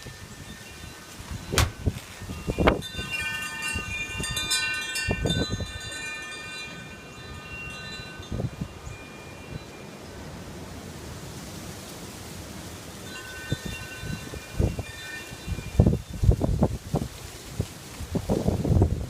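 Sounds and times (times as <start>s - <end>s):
wind buffeting microphone: 0.0s - 9.0s, 13.4s - 19.0s
wind chimes ringing: 0.0s - 10.3s, 13.0s - 16.4s.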